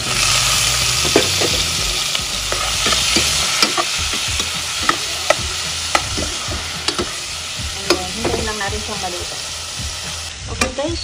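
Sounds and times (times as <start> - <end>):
shrimp sizzling in hot oil: 0.0 - 11.0.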